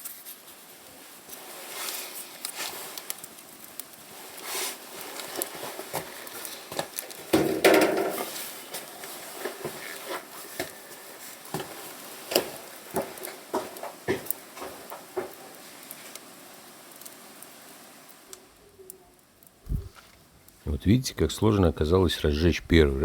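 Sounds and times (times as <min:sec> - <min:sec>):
kindling crackling and popping: 0:00.0 - 0:23.0
rushing rustling noise: 0:19.6 - 0:20.7.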